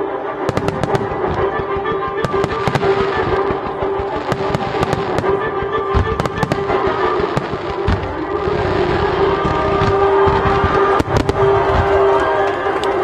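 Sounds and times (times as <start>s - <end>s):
music with long held notes: 0.0s - 13.0s.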